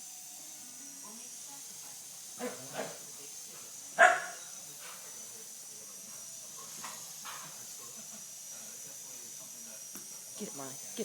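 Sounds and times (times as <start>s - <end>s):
dog barking: 4.0s - 4.4s.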